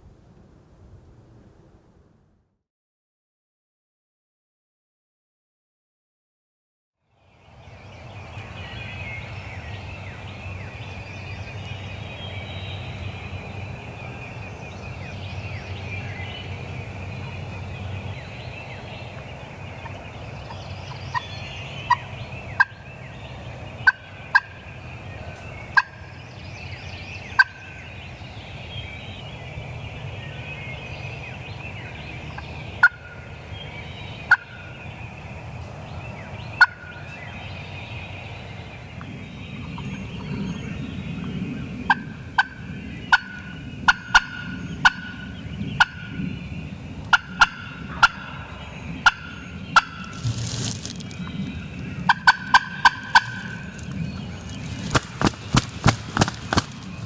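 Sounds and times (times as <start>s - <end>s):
songbirds singing: 7.1s - 57.0s
turkeys gobbling: 23.8s - 24.5s, 25.8s - 26.0s, 47.1s - 51.1s, 52.0s - 57.0s.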